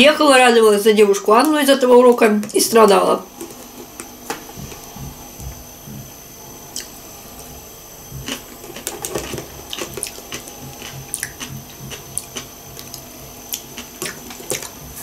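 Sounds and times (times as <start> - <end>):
wet chewing and mouth smacks: 8.2 - 15.0.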